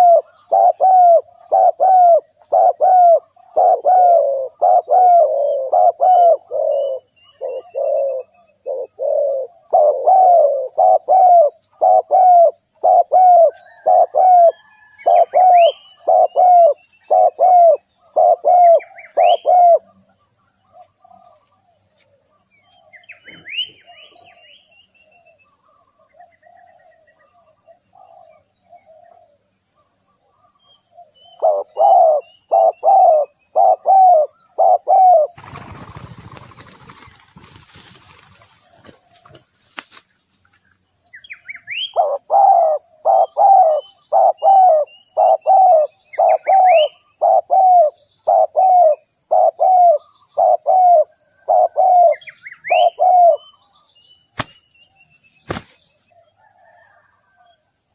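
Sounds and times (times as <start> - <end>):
dove cooing: 0.0 - 20.0, 31.4 - 39.4, 41.8 - 53.5, 56.4 - 57.5
small birds chirping: 0.0 - 57.6.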